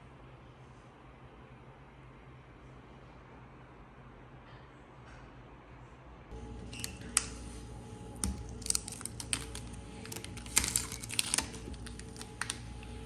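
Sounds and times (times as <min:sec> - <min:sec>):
steady hum: 0:05.7 - 0:13.0.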